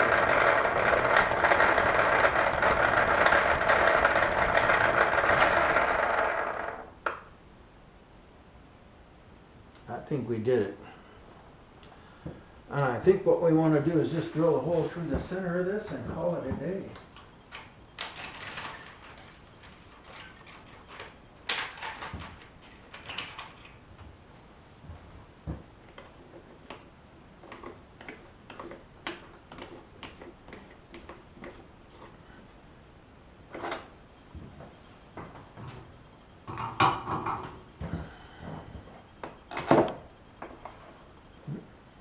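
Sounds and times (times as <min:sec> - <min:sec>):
metal tools clinking and clanking: 0:16.9 - 0:23.8.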